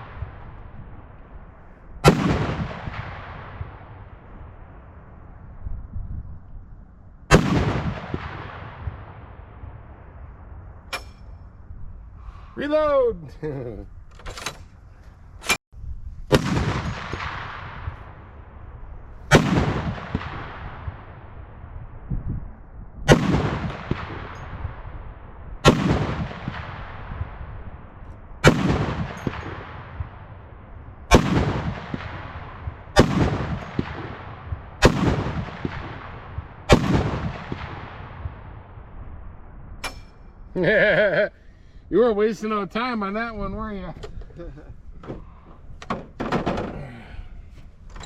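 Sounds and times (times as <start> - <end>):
heavy rifle shots echoing: 0.0 - 5.3, 7.3 - 11.2, 16.3 - 18.4, 19.2 - 21.2, 23.1 - 24.8, 25.6 - 27.6, 28.4 - 30.5, 31.1 - 38.8.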